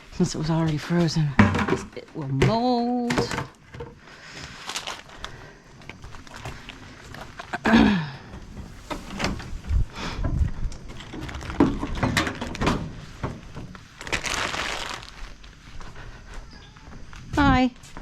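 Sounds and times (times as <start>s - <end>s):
bags rustling: 4.2s - 15.6s
bags knocking and thumping: 5.8s - 15.4s.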